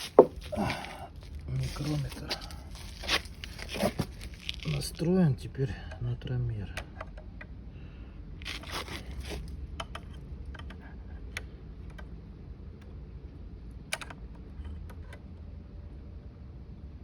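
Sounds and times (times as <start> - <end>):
scraping rustle: 0.0 - 5.0, 8.4 - 9.5
steady low hum: 0.0 - 17.0
small metal clicks and taps: 9.7 - 12.2.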